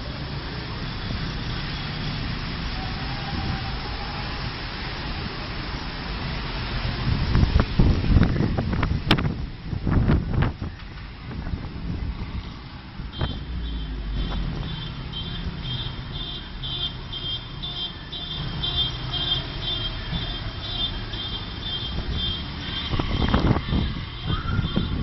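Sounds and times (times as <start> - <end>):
motor vehicle running: 9.9 - 25.0.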